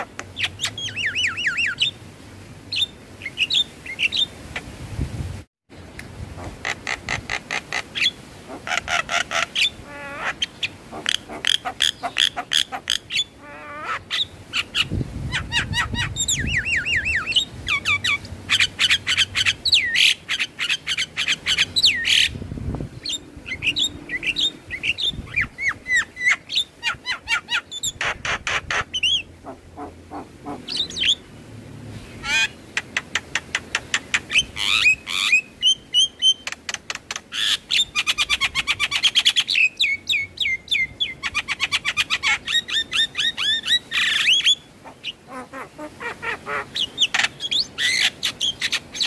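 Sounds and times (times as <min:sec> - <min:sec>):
bird calling with clicks and whistles: 0:32.3 - 0:45.2.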